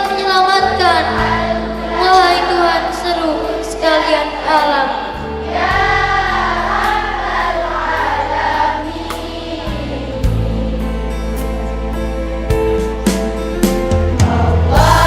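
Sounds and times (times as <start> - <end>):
children singing together: 0.0 - 11.1, 14.2 - 15.0
backing music with low notes: 0.0 - 15.0.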